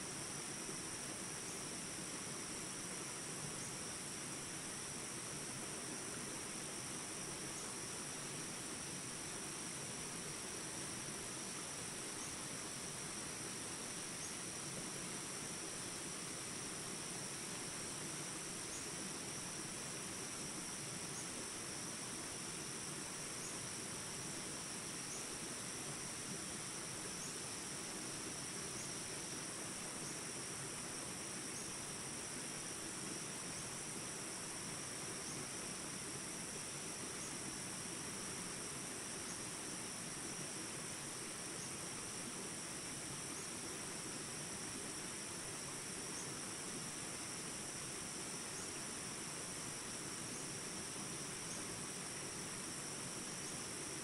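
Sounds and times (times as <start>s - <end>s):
high insect chorus: 0.0s - 54.0s.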